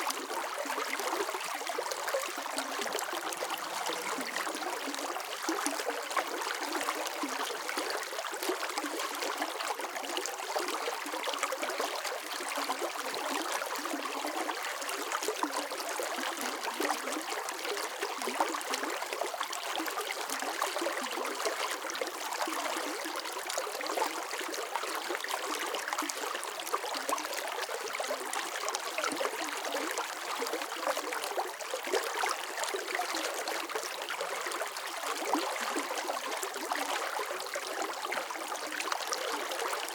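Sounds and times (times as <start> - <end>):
water flowing and babbling: 0.0 - 39.9.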